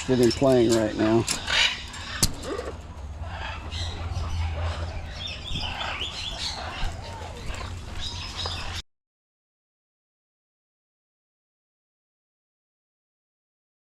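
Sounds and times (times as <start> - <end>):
parrots chirping and squeaking: 0.0 - 8.8
steady low hum: 0.0 - 8.8.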